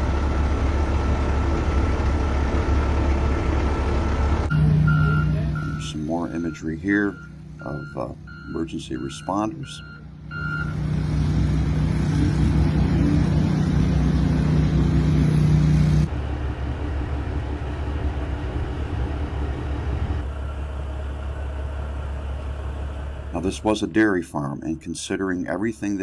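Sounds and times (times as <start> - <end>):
vehicle engines humming and rumbling: 0.0 - 26.0.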